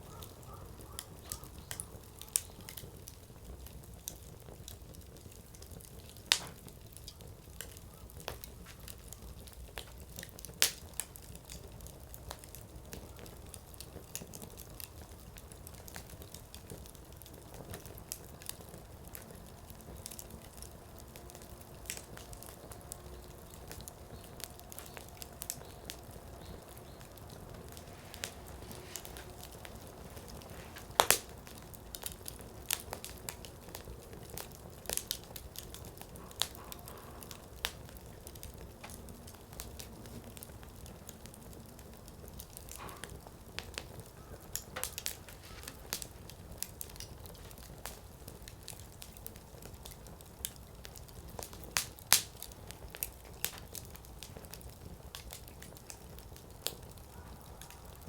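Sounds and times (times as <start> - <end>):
firewood crackling and popping: 0.0 - 58.0.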